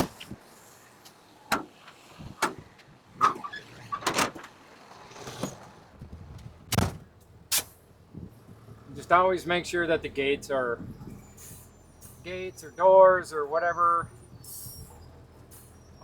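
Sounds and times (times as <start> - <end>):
truck engine low hum: 0.0 - 16.0
metal knocks and clunks: 1.5 - 4.6, 6.7 - 7.1.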